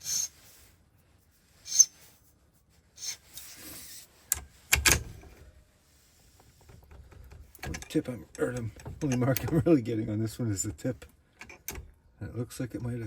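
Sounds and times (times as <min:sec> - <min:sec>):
file scraping metal: 0:00.0 - 0:00.4.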